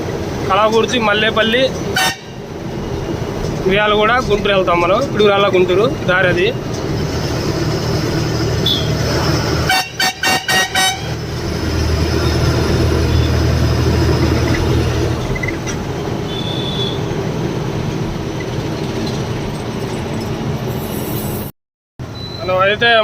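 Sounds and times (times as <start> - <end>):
truck engine running: 0.0 - 20.7
road noise: 0.0 - 23.0
vehicle horn toots: 2.0 - 2.4, 8.6 - 9.0, 9.6 - 11.2, 16.2 - 17.1.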